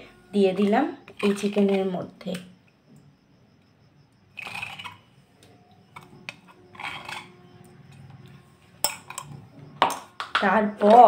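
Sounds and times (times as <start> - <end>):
utensils scraping bowls: 0.0 - 2.4, 4.3 - 11.0
utensils clicking against bowls: 0.5 - 2.5, 6.0 - 7.4, 8.8 - 11.0.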